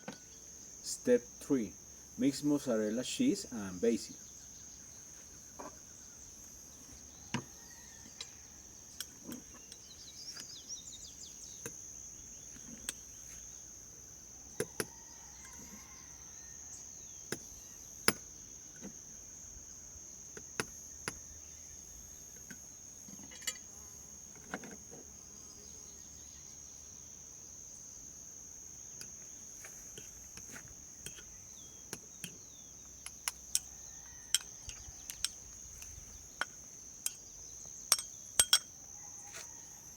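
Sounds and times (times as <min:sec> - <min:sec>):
crickets chirring: 0:00.0 - 0:39.9
spoon tapping a bowl: 0:37.9 - 0:38.7.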